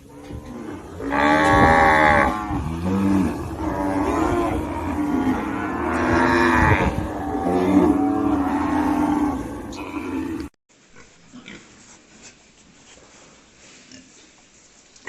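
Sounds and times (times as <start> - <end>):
cattle mooing: 0.0 - 10.5.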